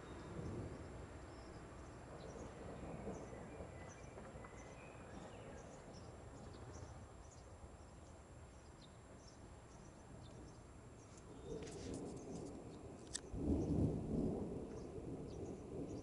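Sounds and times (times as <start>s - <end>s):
steady low outdoor noise: 0.0s - 16.0s.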